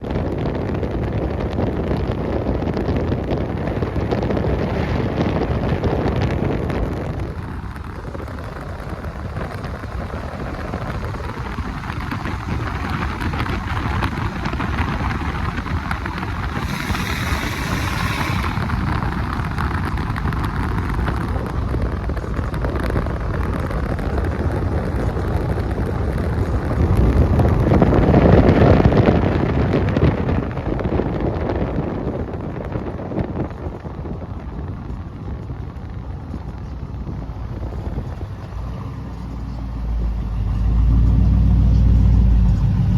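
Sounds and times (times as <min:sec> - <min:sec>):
outdoor traffic: 0:00.0 - 0:42.9
wind on microphone: 0:00.0 - 0:42.9
car engines running: 0:00.1 - 0:29.8, 0:34.2 - 0:42.9
brief hiss: 0:16.4 - 0:19.2.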